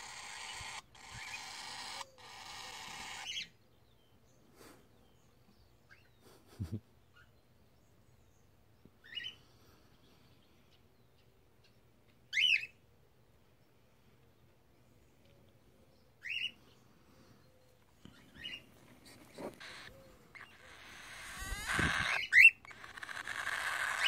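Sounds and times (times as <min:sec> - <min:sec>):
cockatiel chirping and warbling: 0:00.0 - 0:03.6, 0:18.1 - 0:24.0.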